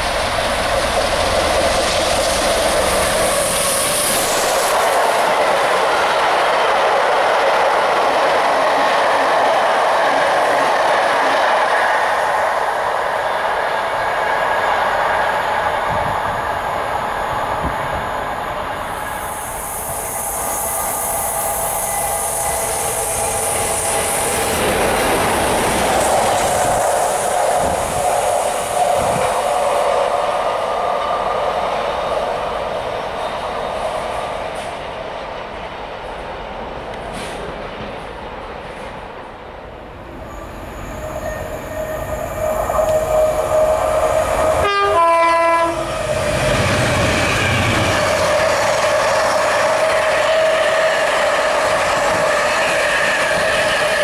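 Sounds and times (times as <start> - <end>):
high hiss: 0.0 - 5.4, 12.3 - 30.4
diesel locomotive engine: 0.0 - 54.0
train wheels clattering on rails: 19.7 - 39.2, 45.9 - 54.0.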